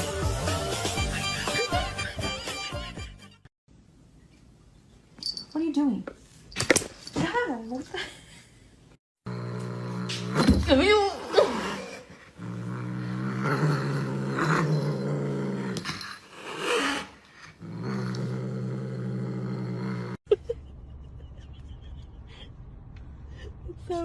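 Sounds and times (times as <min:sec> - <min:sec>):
dog growling: 0:09.2 - 0:20.2.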